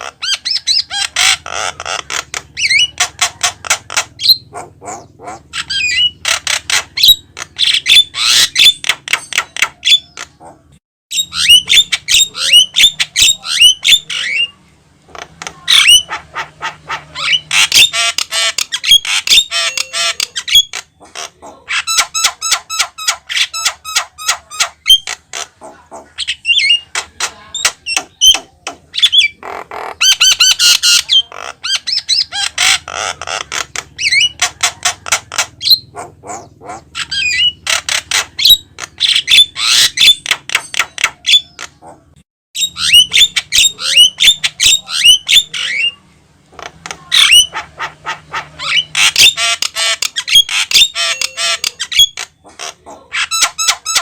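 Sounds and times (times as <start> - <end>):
bird singing with chattering notes: 0.0 - 54.0
bird harsh squawks and whistles: 11.1 - 14.6, 15.2 - 41.9, 42.6 - 46.0, 47.0 - 54.0.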